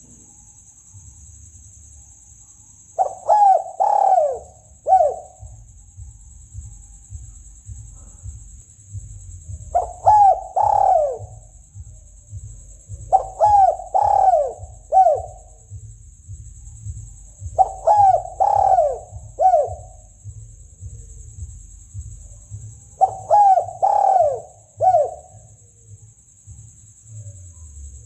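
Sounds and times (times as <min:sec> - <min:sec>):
steady high hiss: 0:00.0 - 0:28.0
dove cooing: 0:03.0 - 0:06.1, 0:06.8 - 0:15.8, 0:16.8 - 0:25.7.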